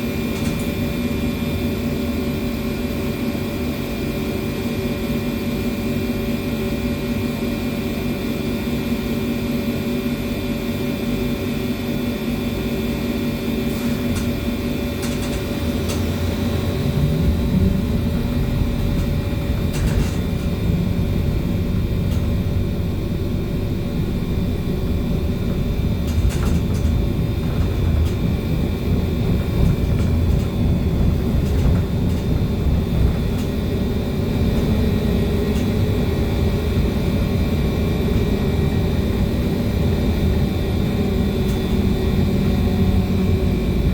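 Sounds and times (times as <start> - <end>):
electric motor hum and whine: 0.0 - 43.9
road rumble: 12.7 - 43.9
knocks and rattles: 13.7 - 22.6, 25.1 - 35.8.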